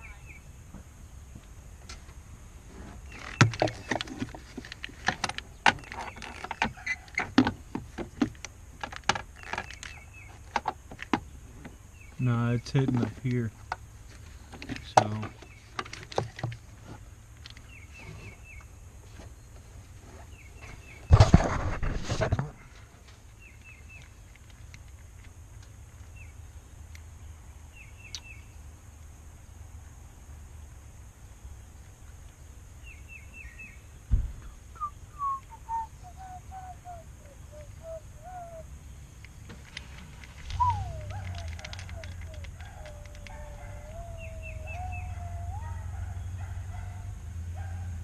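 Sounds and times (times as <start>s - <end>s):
faint bird chirps: 0.0s - 0.6s, 32.8s - 39.5s, 40.4s - 46.2s
dull thump: 34.1s - 34.5s
bird whistled notes: 34.8s - 38.7s, 40.5s - 41.4s.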